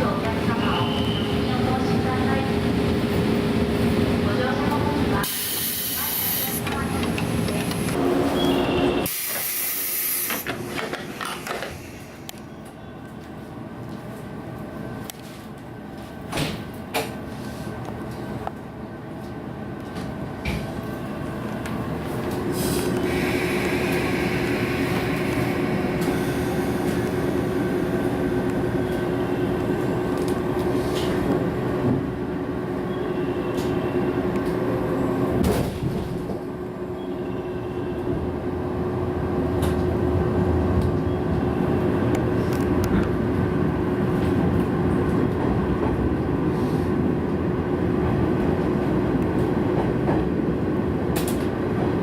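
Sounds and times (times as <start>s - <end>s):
train hum: 0.0s - 52.0s.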